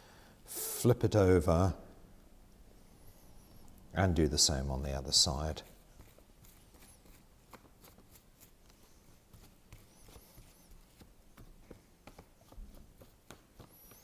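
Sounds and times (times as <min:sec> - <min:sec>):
glue brush dabbing on paper: 0:04.8 - 0:14.0.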